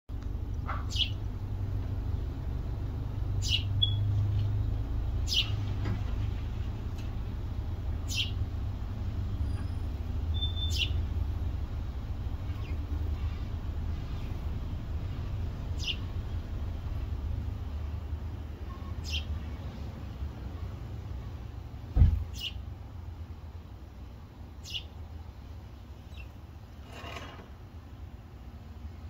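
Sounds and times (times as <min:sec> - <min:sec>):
bird chirping: 0:00.6 - 0:01.3, 0:03.3 - 0:04.1, 0:05.2 - 0:05.6, 0:08.0 - 0:08.4, 0:09.3 - 0:11.1, 0:12.4 - 0:14.5, 0:15.1 - 0:16.5, 0:18.7 - 0:19.8, 0:22.3 - 0:22.6, 0:24.6 - 0:25.0, 0:26.0 - 0:26.4.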